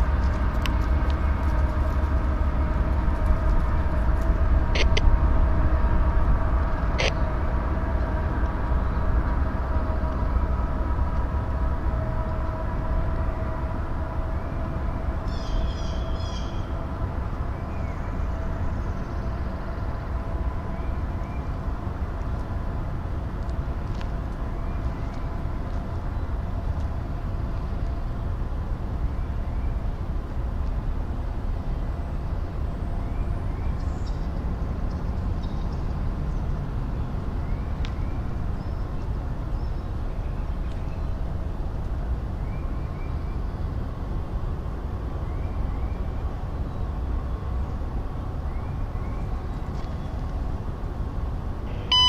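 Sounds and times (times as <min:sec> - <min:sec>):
freight train rumbling past: 0:00.0 - 0:33.8
faint steady tones: 0:51.6 - 0:52.0.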